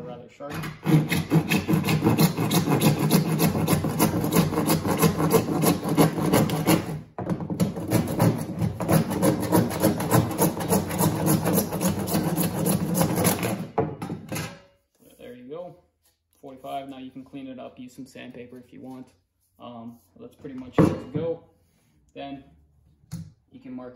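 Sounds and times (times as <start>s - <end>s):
hand saw cutting plastic pipe: 0.5s - 13.8s.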